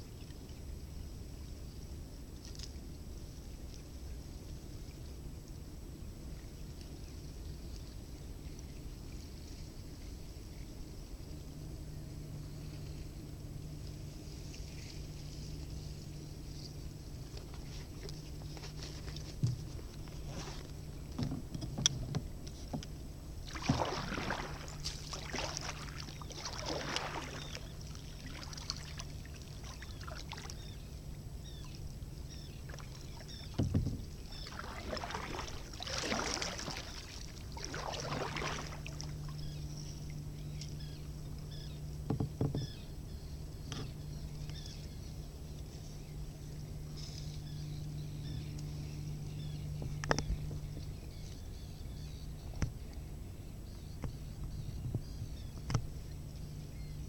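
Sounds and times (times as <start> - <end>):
low steady hum: 0.0 - 57.0
paddle strokes swishing water: 12.4 - 42.9.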